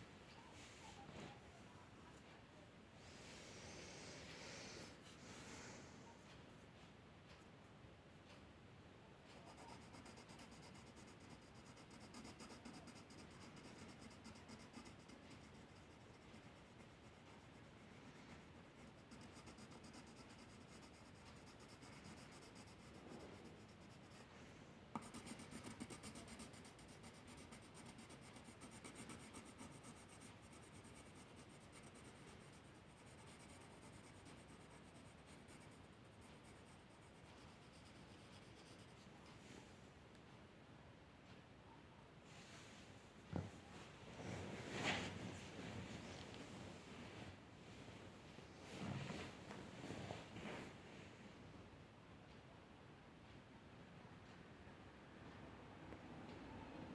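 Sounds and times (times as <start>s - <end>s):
drawing tool scratching paper: 9.3s - 24.3s, 25.0s - 39.0s.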